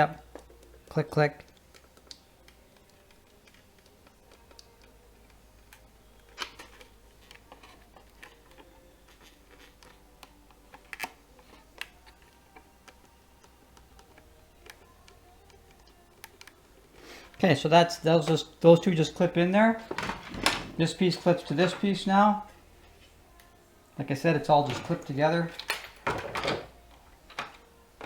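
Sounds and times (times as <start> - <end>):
plastic parts clicking and knocking: 0.2 - 16.6, 19.8 - 21.9, 24.6 - 27.7.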